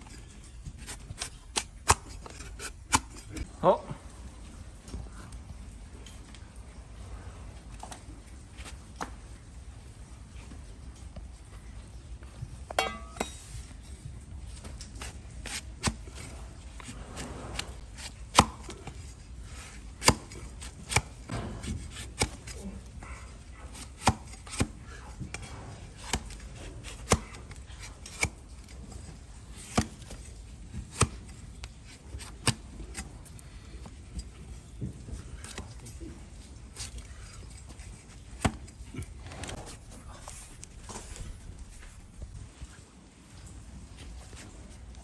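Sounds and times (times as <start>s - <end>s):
knife cutting hoof horn: 0.0s - 3.5s, 14.6s - 41.3s.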